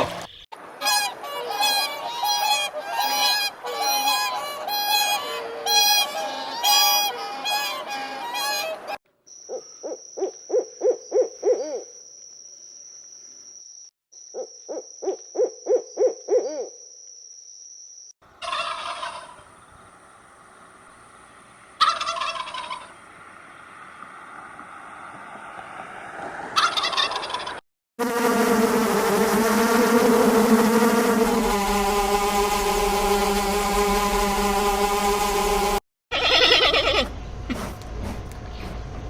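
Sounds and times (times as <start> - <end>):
steady high tone: 28.0 - 35.8.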